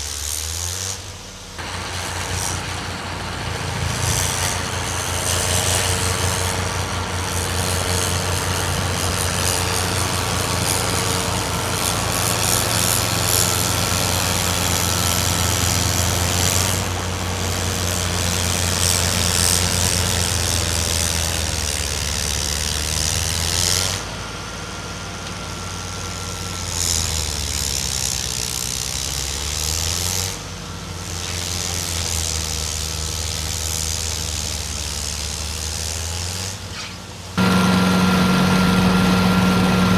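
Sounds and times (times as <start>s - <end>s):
heavy machinery engine running: 1.6s - 23.5s, 37.4s - 39.9s.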